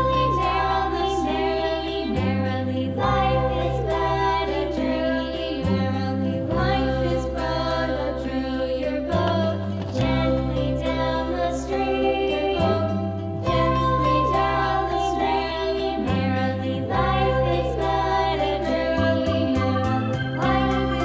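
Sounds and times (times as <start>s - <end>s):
melody: 0.0s - 5.6s, 11.8s - 21.0s
low bass notes: 15.7s - 21.0s.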